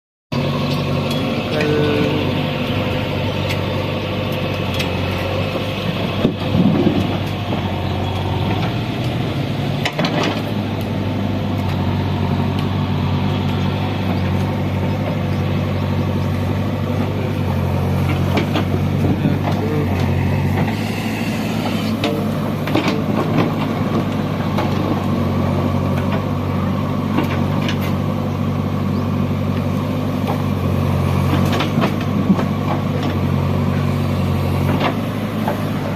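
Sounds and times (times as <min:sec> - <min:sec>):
backhoe diesel engine running: 0:00.3 - 0:35.9
machine knocks and clanks: 0:22.0 - 0:25.0.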